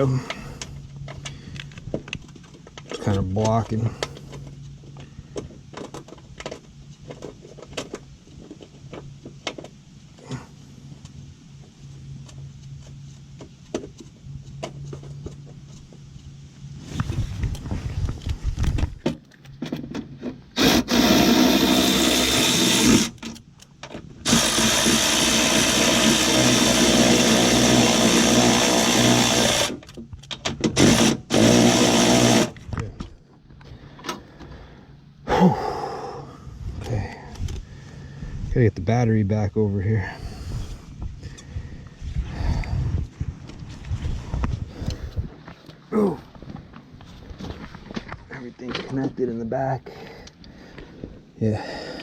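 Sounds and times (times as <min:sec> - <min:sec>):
electric power tool running: 0:20.6 - 0:23.2, 0:24.2 - 0:29.9, 0:30.8 - 0:32.6.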